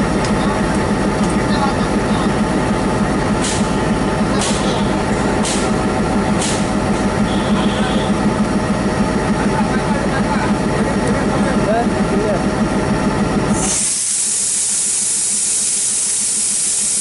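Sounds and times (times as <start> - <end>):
locomotive engine humming: 0.0 - 17.0
air hisses: 13.6 - 17.0.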